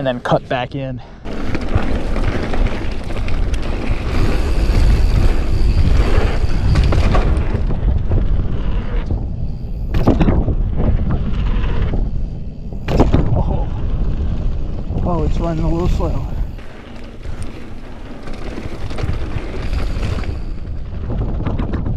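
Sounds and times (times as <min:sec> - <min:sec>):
tyres rushing on dirt trail: 0:00.0 - 0:21.9
wind buffeting microphone: 0:01.2 - 0:21.9
bike clicks and knocks: 0:01.3 - 0:12.2, 0:16.0 - 0:21.9.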